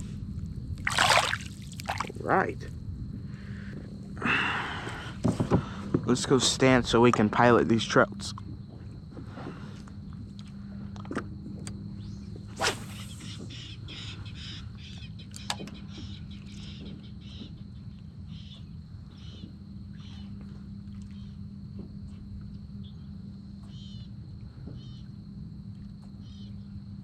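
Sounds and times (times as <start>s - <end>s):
steady low hum: 0.0s - 27.0s
bird calling: 12.9s - 17.6s.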